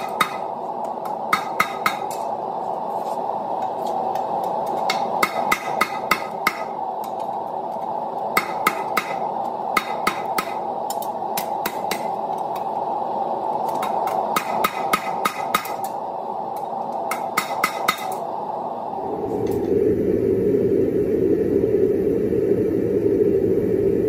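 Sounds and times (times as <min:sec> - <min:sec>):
hammer striking steel on anvil: 0:00.0 - 0:02.3, 0:04.6 - 0:06.8, 0:08.4 - 0:12.2, 0:13.7 - 0:16.0, 0:17.1 - 0:18.2
steady rushing noise: 0:00.0 - 0:24.0.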